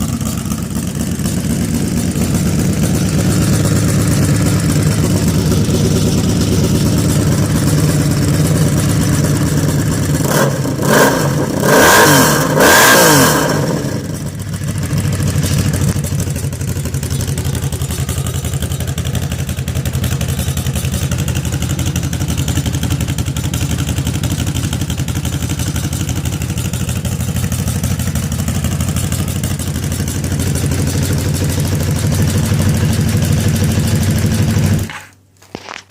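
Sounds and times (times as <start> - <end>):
motorcycle engine idling and revving: 0.0 - 35.8.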